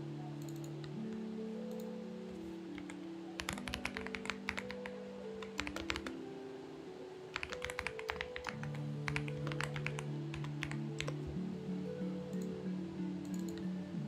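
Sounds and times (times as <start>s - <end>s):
soft background music: 0.0s - 14.0s
mechanical keyboard typing: 2.7s - 6.2s, 7.3s - 11.4s, 13.2s - 13.7s.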